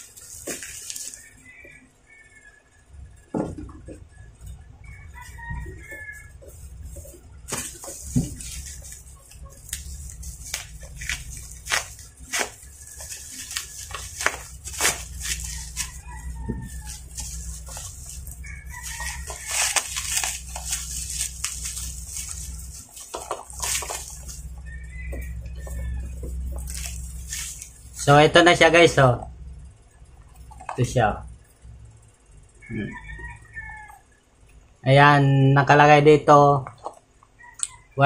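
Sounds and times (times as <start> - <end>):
plastic and bubble wrap crinkling: 0.0 - 2.3, 4.9 - 28.6
chicken clucking: 15.4 - 19.9, 22.1 - 26.8, 32.6 - 34.0.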